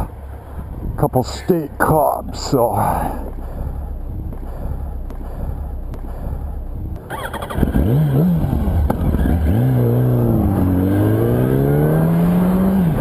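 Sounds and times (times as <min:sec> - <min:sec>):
wind rush: 0:00.0 - 0:09.2
motorcycle engine accelerating: 0:01.8 - 0:13.0.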